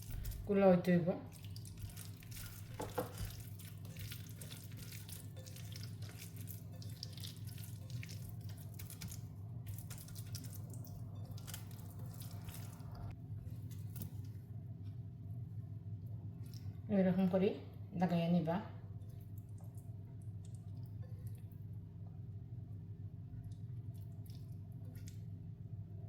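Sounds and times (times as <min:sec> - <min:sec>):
batter squelching in bowl: 0:01.3 - 0:14.3.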